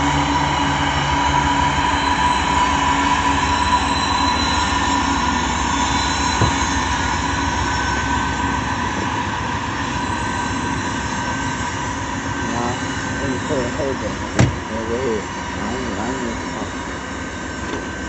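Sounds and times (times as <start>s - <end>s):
wheels rumbling on rail: 0.0s - 18.0s
train car clunk: 6.4s - 7.0s.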